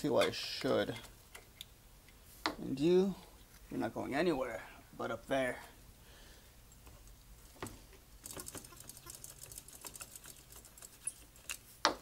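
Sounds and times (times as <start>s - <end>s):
small metal parts clicking: 8.2s - 11.6s.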